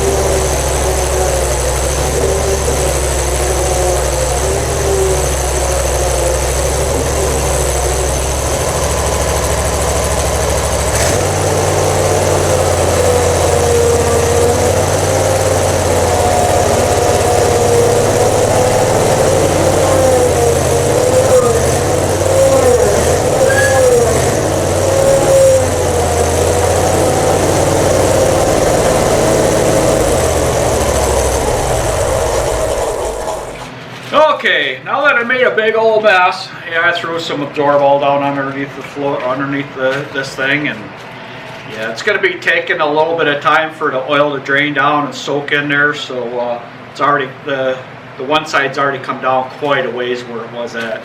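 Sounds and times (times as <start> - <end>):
mechanical engine drone: 0.0 - 34.1.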